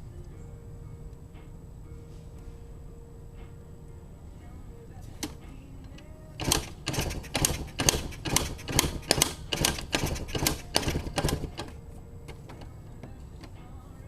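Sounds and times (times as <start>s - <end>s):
two-stroke engine putting: 5.1s - 13.6s.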